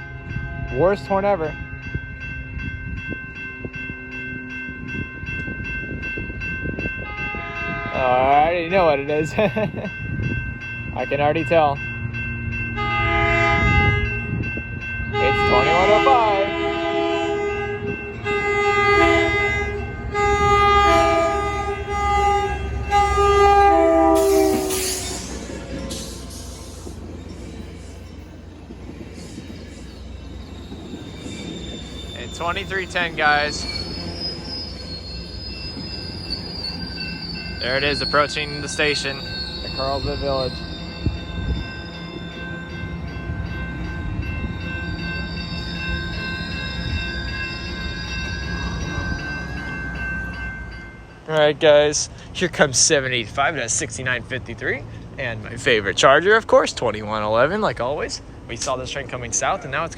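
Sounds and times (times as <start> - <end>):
train rumbling: 0.0 - 59.9
train horn blasts: 7.0 - 8.0, 12.8 - 14.3, 15.1 - 25.3
high-pitched tones: 29.1 - 51.0.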